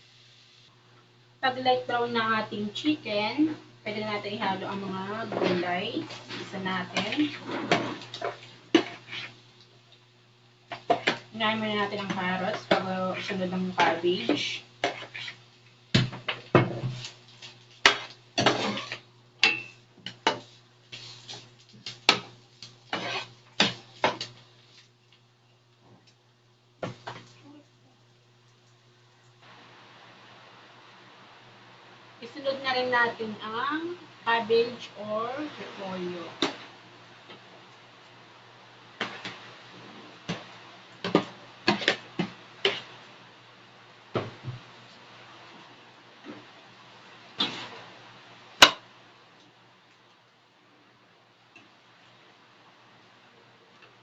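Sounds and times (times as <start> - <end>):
spoon scraping a pan: 4.8 - 9.4, 10.7 - 11.2, 11.8 - 15.4, 16.3 - 24.9, 41.0 - 43.0, 47.4 - 47.9.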